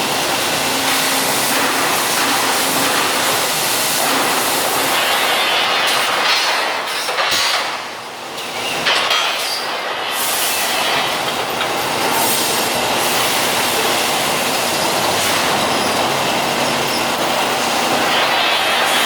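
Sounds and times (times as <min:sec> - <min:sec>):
metalworking machine grinding: 0:10.3 - 0:19.0.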